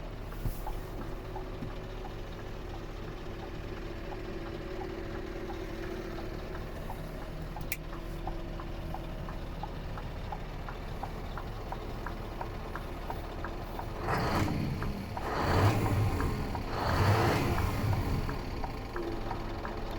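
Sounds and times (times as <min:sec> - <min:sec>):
diesel engine idling: 0:00.0 - 0:19.9
light regular ticking: 0:00.3 - 0:19.9
engine revving: 0:13.7 - 0:19.8.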